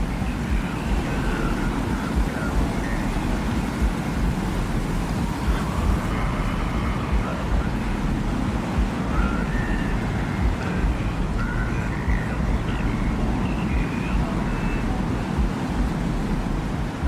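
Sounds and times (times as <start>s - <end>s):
faint wind whistling: 0.0s - 17.0s
loud wind rumbling: 0.0s - 17.0s.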